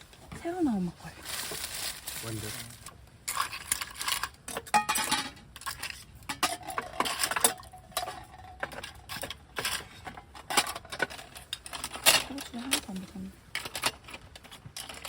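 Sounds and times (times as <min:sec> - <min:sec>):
tableware clinking and knocking: 0:03.3 - 0:15.0.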